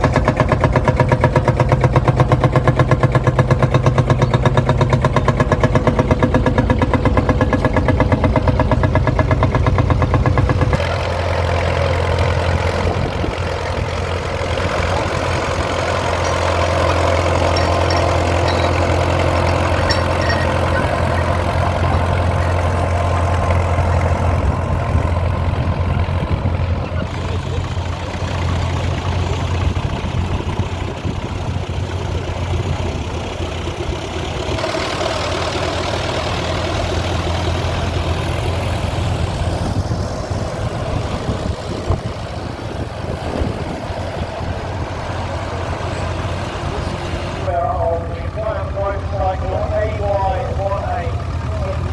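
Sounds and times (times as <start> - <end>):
engine idling: 0.0 - 51.9.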